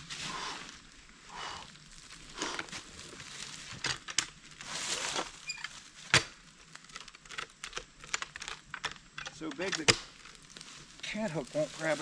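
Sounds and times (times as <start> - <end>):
shuffling and scraping around log: 2.2 - 6.0, 10.5 - 12.0.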